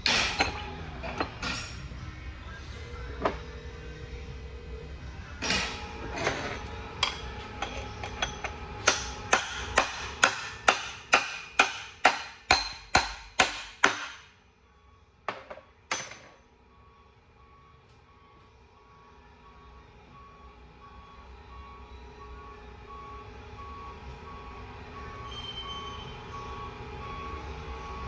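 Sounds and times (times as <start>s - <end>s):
hammer striking metal: 0.0s - 1.8s, 5.4s - 14.4s, 15.3s - 16.4s.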